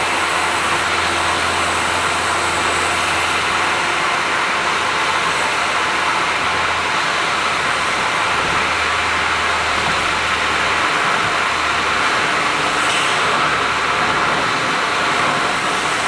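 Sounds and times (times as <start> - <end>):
car exhaust drone: 0.0 - 16.0
road noise: 0.0 - 16.0.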